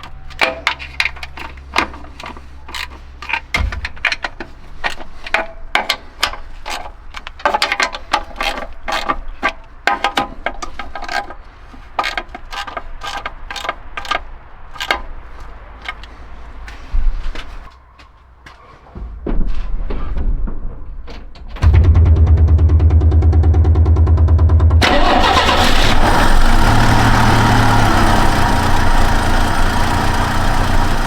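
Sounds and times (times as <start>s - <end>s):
low steady hum: 21.6s - 27.1s.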